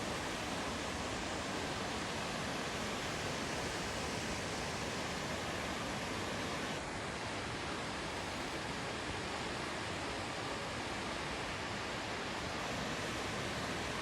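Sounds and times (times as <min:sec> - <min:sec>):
waterfall rushing: 0:12.4 - 0:14.0.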